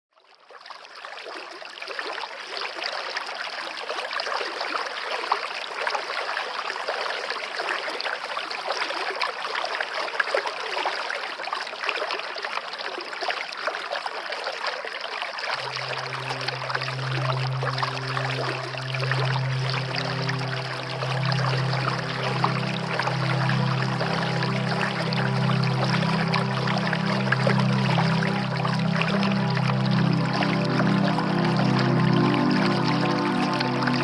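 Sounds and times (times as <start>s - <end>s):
low steady tone: 15.6s - 34.0s.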